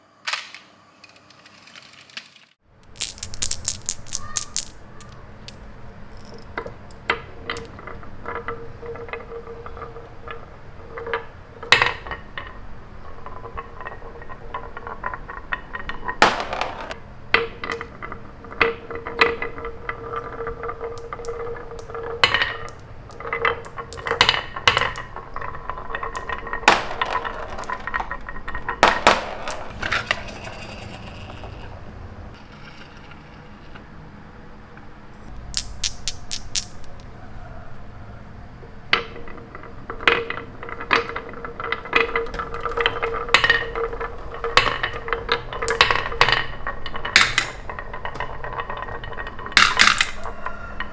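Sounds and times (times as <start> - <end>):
toy pieces clicking and clinking: 1.2 - 9.2, 18.6 - 31.7, 35.3 - 37.1, 40.9 - 50.4.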